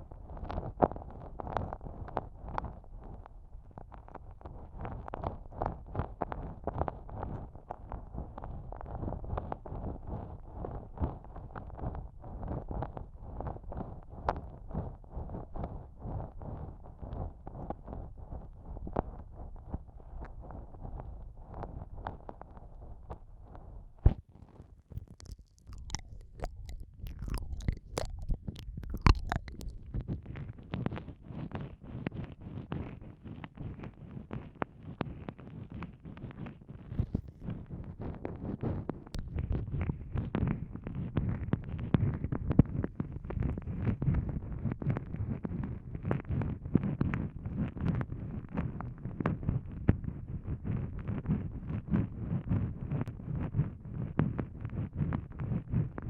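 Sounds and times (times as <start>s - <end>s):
tongue clicks: 24.5s - 30.2s
lip smacks: 24.9s - 30.1s
wet mouth sucking: 24.9s - 30.2s.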